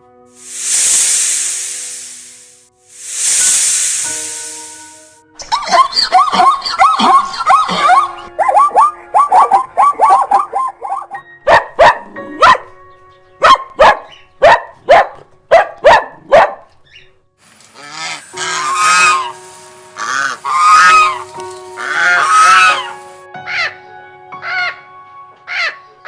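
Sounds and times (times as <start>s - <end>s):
duck quacking: 17.8s - 19.4s, 20.0s - 21.2s, 21.8s - 23.0s.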